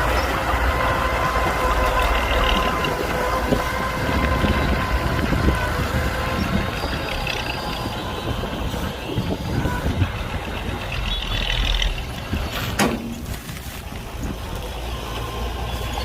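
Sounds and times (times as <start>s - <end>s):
steady machine whine: 0.0s - 12.4s
diesel engine rumble: 0.0s - 16.0s.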